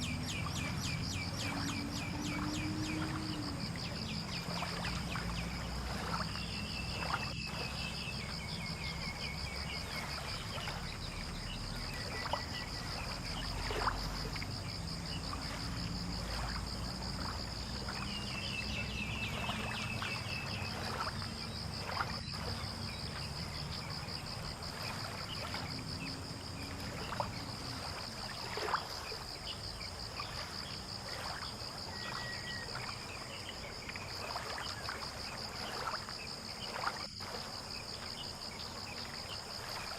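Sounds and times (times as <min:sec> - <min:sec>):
high insect trill: 0:00.0 - 0:39.9.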